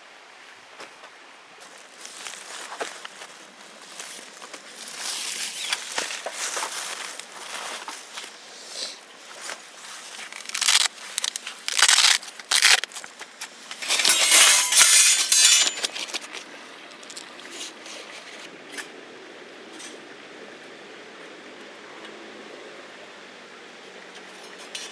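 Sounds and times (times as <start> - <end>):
faint steady hiss: 0.0 - 24.9
rustling and crinkling: 1.6 - 18.5.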